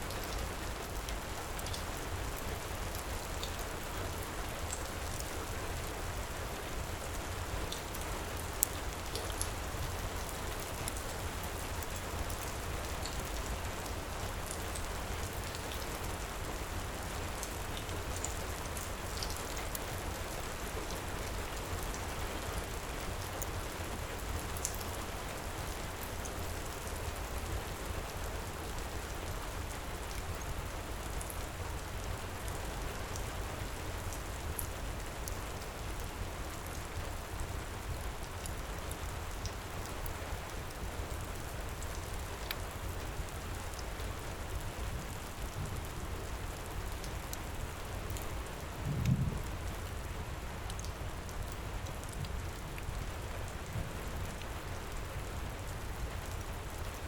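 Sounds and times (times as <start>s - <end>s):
heavy rain: 0.0s - 57.0s
low rumble: 48.8s - 49.8s.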